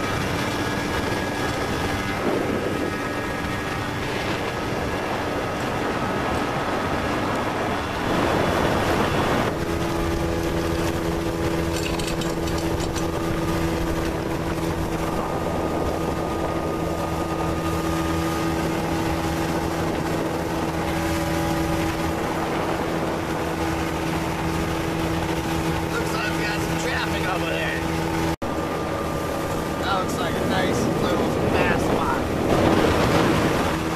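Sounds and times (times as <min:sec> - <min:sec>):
boat motor droning: 0:00.0 - 0:33.9
rushing wind and water: 0:00.0 - 0:33.9.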